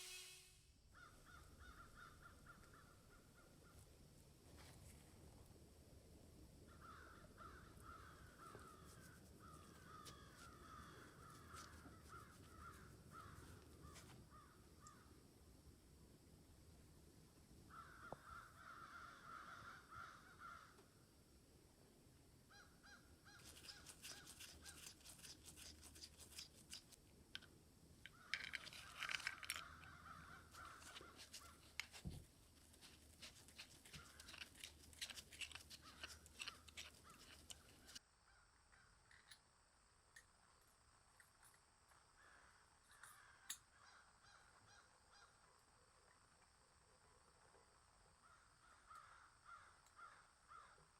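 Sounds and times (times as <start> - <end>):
rasping strokes: 23.4 - 27.0, 28.3 - 38.0
small clicks and ticks: 23.4 - 38.0.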